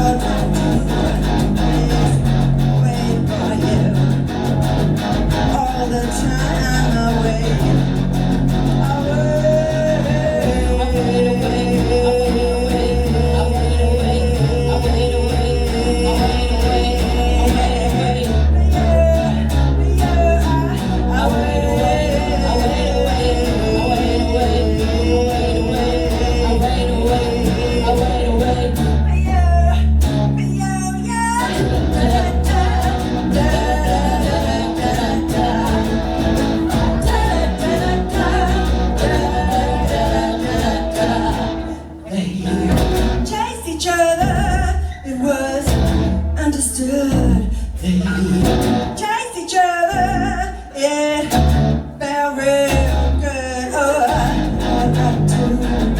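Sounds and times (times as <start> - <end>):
lead guitar bending pitch: 31.4 - 41.9.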